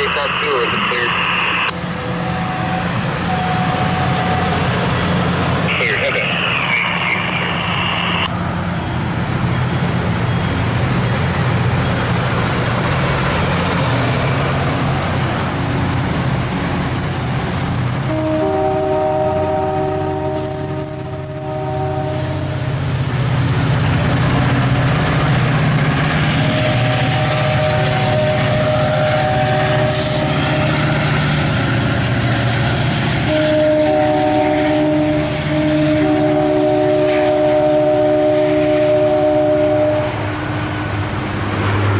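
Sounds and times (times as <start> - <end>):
moving vehicle rumble: 0.0 - 41.9.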